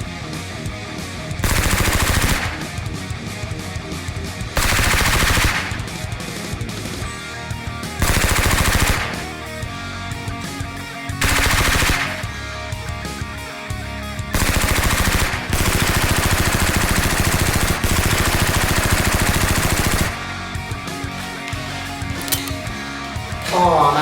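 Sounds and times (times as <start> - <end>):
action music: 0.0 - 24.0
automatic gunfire: 1.4 - 3.0, 4.6 - 6.2, 8.0 - 9.4, 11.2 - 12.4, 14.3 - 20.4.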